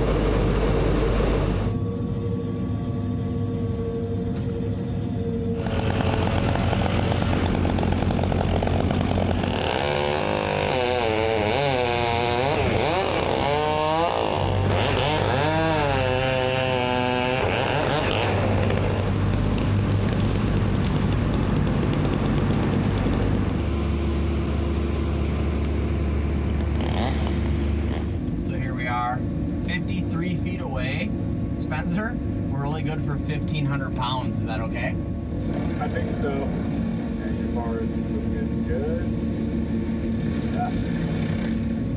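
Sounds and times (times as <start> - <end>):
chainsaw cutting wood: 0.0 - 1.7, 5.6 - 28.3, 35.4 - 37.2, 39.9 - 41.9
engine humming: 0.0 - 41.9.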